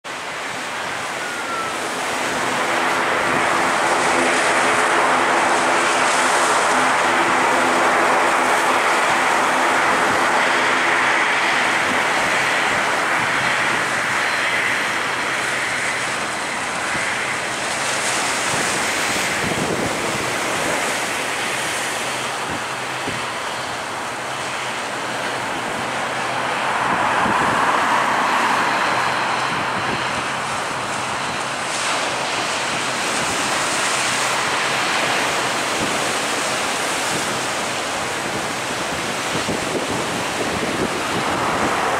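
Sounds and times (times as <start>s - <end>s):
jet engines roaring: 0.0s - 41.9s
wind buffeting microphone: 0.1s - 41.9s.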